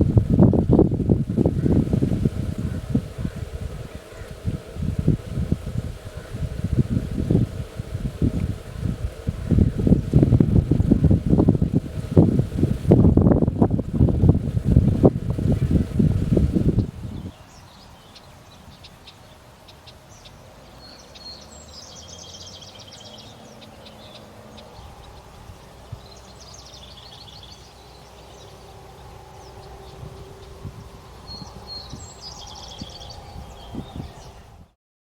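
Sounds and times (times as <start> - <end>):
wind noise on microphone: 0.0 - 19.0, 20.8 - 34.8
bird singing trilled phrase: 31.3 - 34.5.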